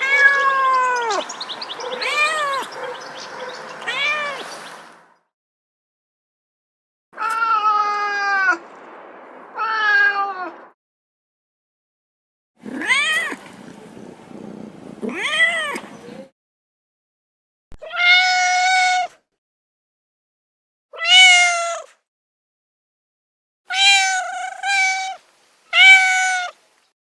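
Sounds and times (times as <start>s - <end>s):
cat meowing: 0.0s - 4.6s, 7.2s - 8.6s, 12.7s - 13.5s, 15.0s - 15.9s, 17.8s - 19.2s, 21.0s - 21.9s, 23.7s - 26.6s.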